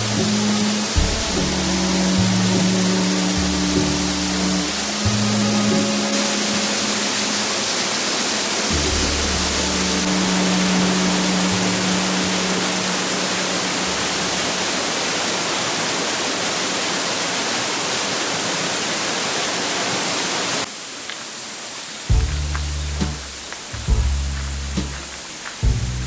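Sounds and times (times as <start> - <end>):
low background music: 0.0 - 7.7, 8.6 - 14.6, 22.1 - 26.0
waterfall rushing: 0.0 - 26.0.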